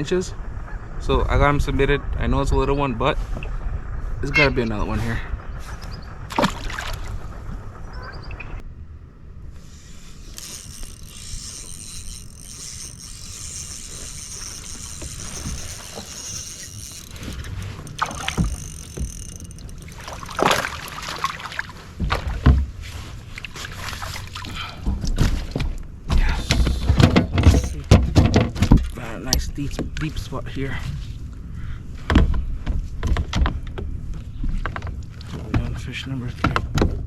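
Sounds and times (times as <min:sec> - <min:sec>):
water washing: 0:12.2 - 0:22.5.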